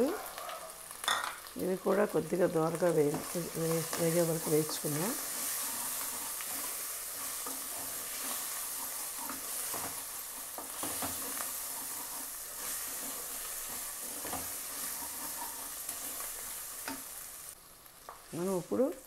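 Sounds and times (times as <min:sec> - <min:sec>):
food sizzling in hot oil: 0:00.0 - 0:19.0
spatula scraping a pot: 0:03.1 - 0:17.1.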